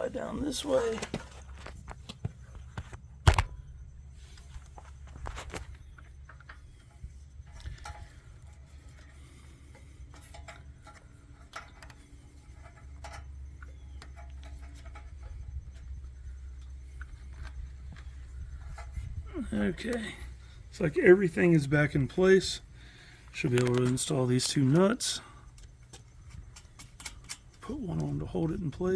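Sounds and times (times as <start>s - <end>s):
low steady hum: 0.0s - 28.9s
light clicks and taps of parts: 4.3s - 19.0s, 23.1s - 28.1s.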